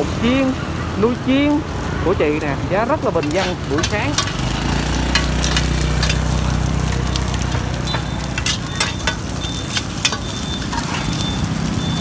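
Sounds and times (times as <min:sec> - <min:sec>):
food sizzling in oil: 0:00.0 - 0:12.0
utensils clicking against pan: 0:03.1 - 0:12.0.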